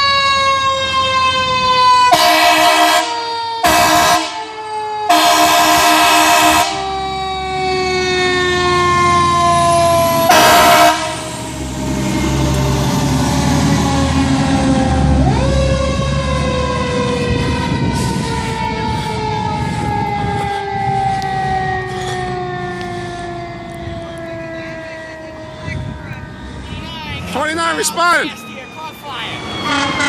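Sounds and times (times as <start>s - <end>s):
air horn blasts: 2.1s - 4.5s, 5.1s - 6.8s, 10.2s - 11.3s, 29.6s - 30.0s
mechanical siren winding down: 3.2s - 26.0s.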